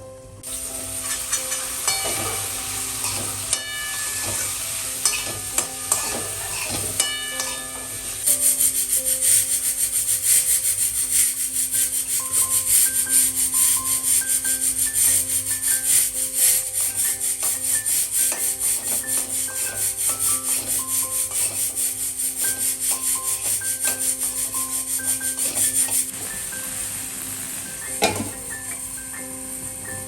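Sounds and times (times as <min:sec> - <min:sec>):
soft background music: 0:00.0 - 0:30.0
fast rubbing strokes: 0:04.4 - 0:07.0, 0:08.2 - 0:26.6.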